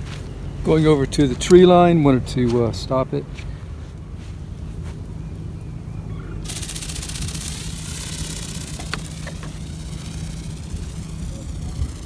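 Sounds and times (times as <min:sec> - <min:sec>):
toy bird motor and wings whirring: 0:04.4 - 0:12.0.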